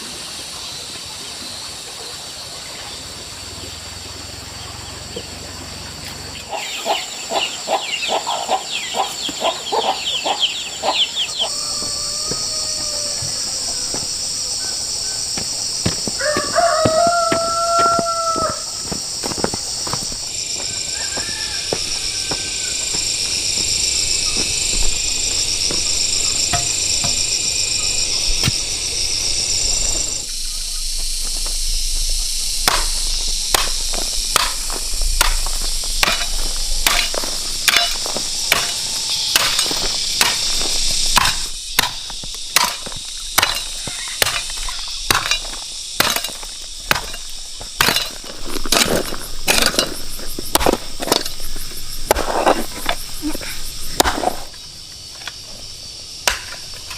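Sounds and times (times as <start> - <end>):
insects chirring: 0.0 - 56.9
hand tool striking: 26.4 - 27.3, 32.6 - 51.4.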